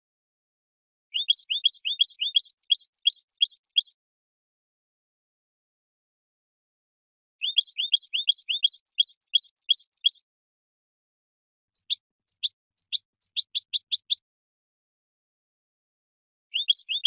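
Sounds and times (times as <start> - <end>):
bird twittering: 1.1 - 4.0, 7.4 - 10.2, 11.7 - 14.2, 16.5 - 17.0.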